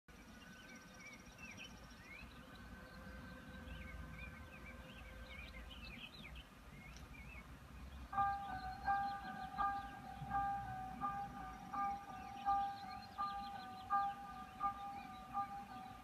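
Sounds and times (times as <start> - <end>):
small birds chirping: 0.1 - 16.0
low outdoor rumble: 6.4 - 16.0
music with sustained notes: 8.1 - 16.0.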